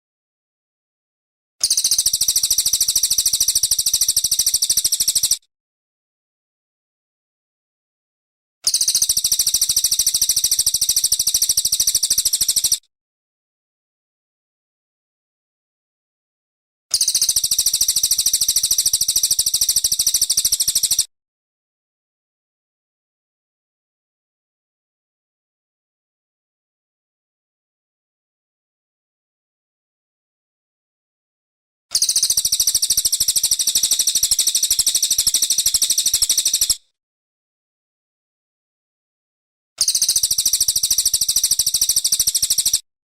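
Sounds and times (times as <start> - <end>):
songbird high-pitched trill: 1.6 - 5.4, 8.7 - 12.8, 16.9 - 21.1, 32.0 - 36.8, 39.8 - 42.8.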